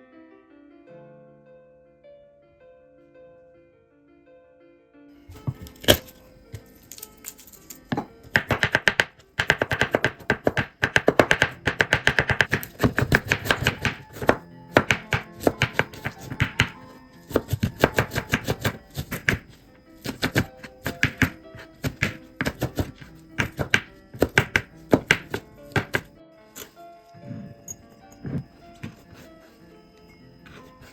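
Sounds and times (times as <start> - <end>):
background music: 0.0 - 30.9
knife chopping on cutting board: 5.3 - 6.1, 7.9 - 26.1, 28.2 - 29.3.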